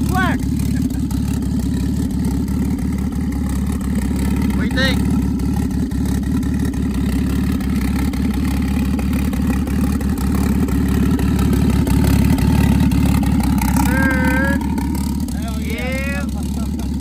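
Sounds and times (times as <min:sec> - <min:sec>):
car engine idling roughly: 0:00.0 - 0:17.0.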